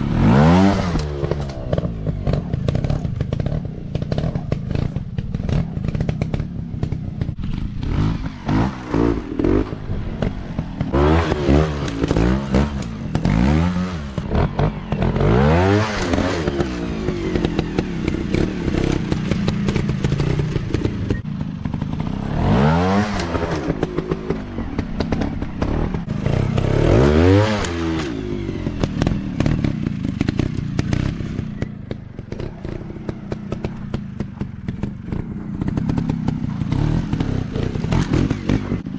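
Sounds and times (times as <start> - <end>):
motocross bike engines revving: 0.0 - 38.9.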